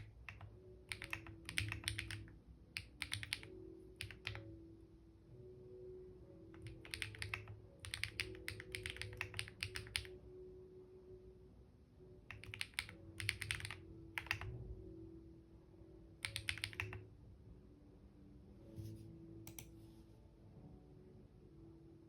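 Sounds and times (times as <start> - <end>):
typing on computer keyboard: 0.0 - 4.5, 6.6 - 10.2, 12.3 - 14.6, 16.2 - 17.0.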